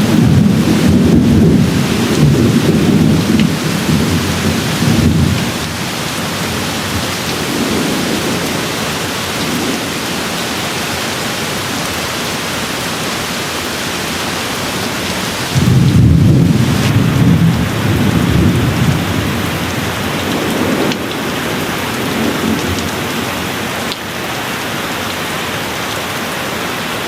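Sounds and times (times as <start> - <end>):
rolling thunder: 0.0 - 12.1, 14.2 - 23.6
steady rain: 0.0 - 27.0.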